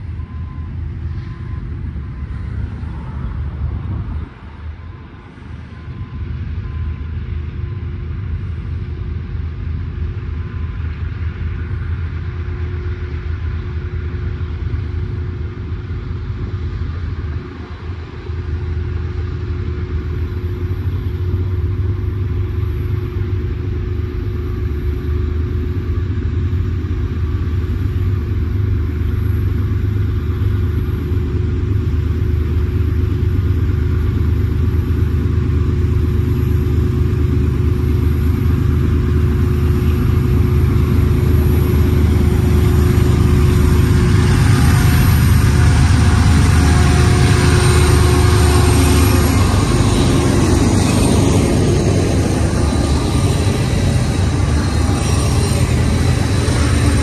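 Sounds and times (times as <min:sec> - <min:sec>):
diesel locomotives rumbling: 0:18.5 - 0:57.0
steady hum: 0:20.0 - 0:57.0.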